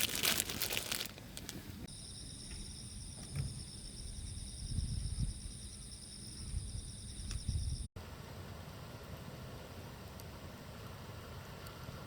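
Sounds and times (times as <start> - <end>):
crackling and rustling: 0.0 - 1.9
insects trilling: 1.9 - 7.9.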